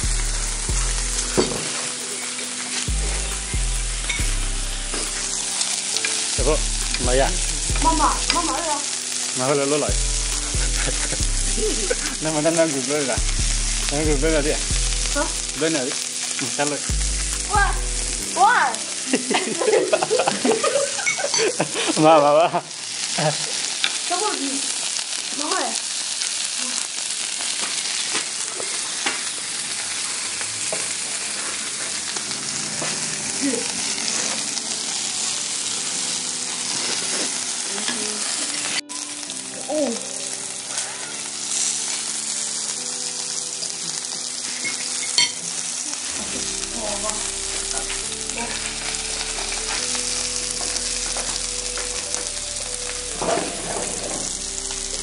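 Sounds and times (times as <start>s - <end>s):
bass line: 0.0s - 1.6s, 2.9s - 5.5s, 6.4s - 8.8s, 9.9s - 12.5s, 13.2s - 15.6s, 16.9s - 18.4s, 46.2s - 55.0s
quiet tune: 0.0s - 21.3s, 45.4s - 55.0s
food sizzling in frying pan: 0.0s - 55.0s.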